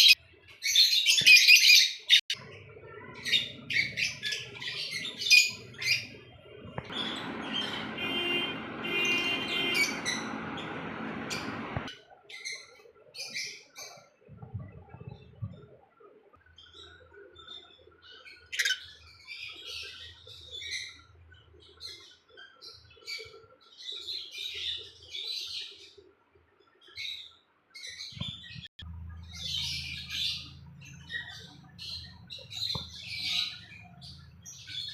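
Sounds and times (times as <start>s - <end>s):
lovebirds chattering: 2.4s - 11.9s, 28.2s - 34.9s
low steady hum: 2.4s - 11.9s.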